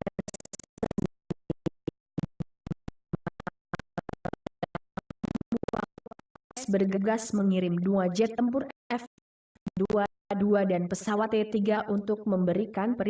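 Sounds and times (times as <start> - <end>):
stuttering chopped voice: 0.0 - 2.4, 3.1 - 7.3.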